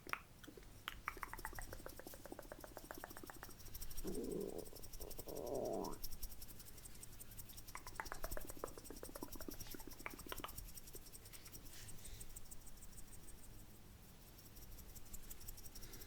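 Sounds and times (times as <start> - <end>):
wet mouth smacking: 0.0 - 6.1, 7.5 - 10.8
tongue and lip clicks: 0.0 - 11.1.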